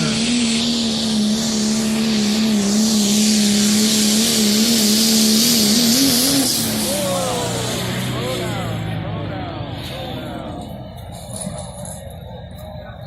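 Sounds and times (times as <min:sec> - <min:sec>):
strong high hiss: 0:00.0 - 0:08.9
truck engine running: 0:00.0 - 0:13.0.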